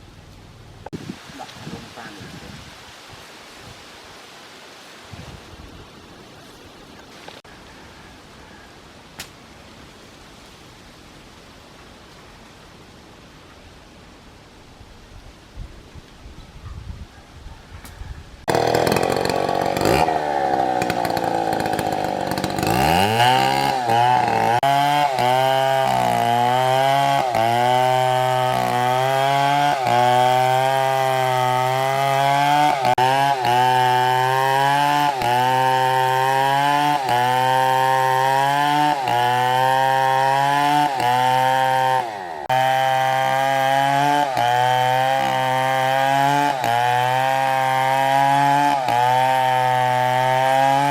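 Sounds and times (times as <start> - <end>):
chainsaw cutting wood: 18.4 - 50.9.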